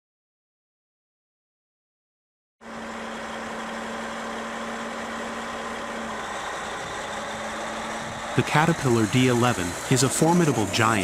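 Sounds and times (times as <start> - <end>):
bulldozer diesel engine running: 2.6 - 11.0.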